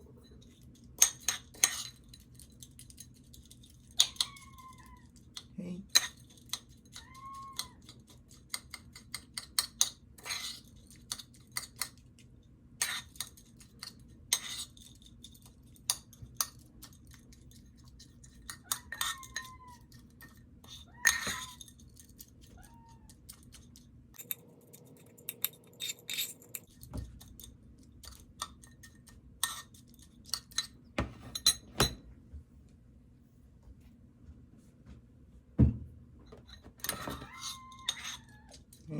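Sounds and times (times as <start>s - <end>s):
dishes and cutlery clinking: 0.0s - 12.0s, 12.8s - 23.6s, 24.2s - 32.1s, 36.3s - 38.9s
cat meowing: 4.0s - 5.2s, 7.0s - 7.9s, 18.6s - 20.0s, 20.7s - 21.6s, 22.5s - 23.2s, 36.9s - 38.6s.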